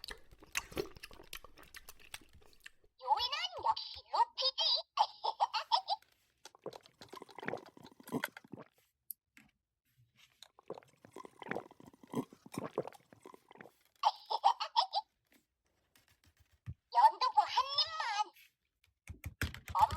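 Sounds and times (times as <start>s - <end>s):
crunchy chewing and biting: 0.0s - 2.9s, 6.1s - 8.8s, 10.3s - 13.9s
high-pitched giggle: 4.6s - 6.0s, 14.0s - 15.1s.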